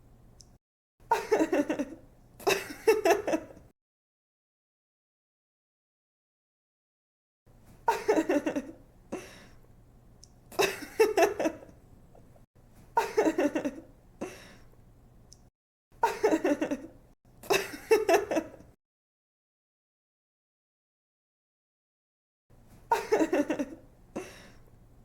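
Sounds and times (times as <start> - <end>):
young woman giggling: 1.1 - 3.6, 7.9 - 8.8, 10.6 - 11.7, 13.0 - 13.9, 16.0 - 18.7, 22.9 - 24.4.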